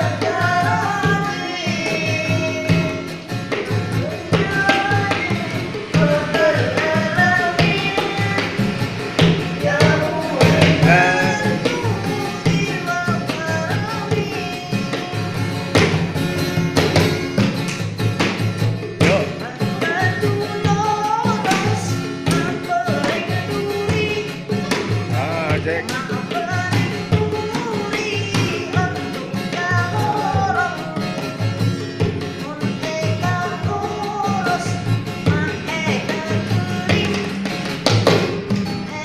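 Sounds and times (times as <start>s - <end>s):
person singing: 0.0s - 15.9s, 19.0s - 37.6s
rhythmic percussion beat: 0.0s - 39.0s.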